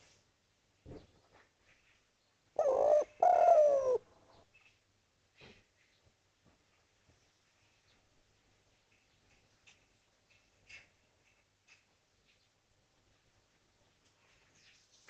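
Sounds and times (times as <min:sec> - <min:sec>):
dove cooing: 0:02.6 - 0:04.0.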